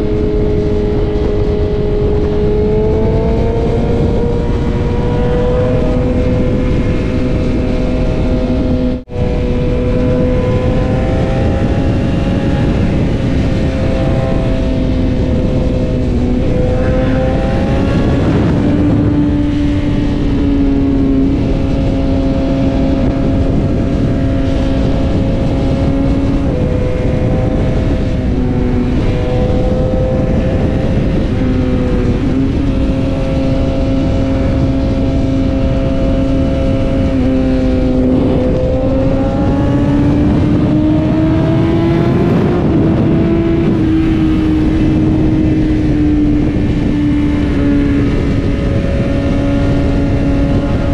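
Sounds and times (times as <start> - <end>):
heavy wind rush: 0.0 - 50.9
motorcycle engine at high rpm: 0.0 - 50.9.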